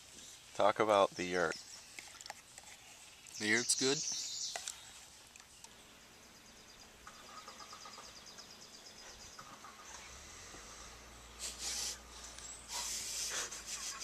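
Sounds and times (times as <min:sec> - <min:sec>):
songbird trilling: 0:03.3 - 0:05.0, 0:05.6 - 0:10.2.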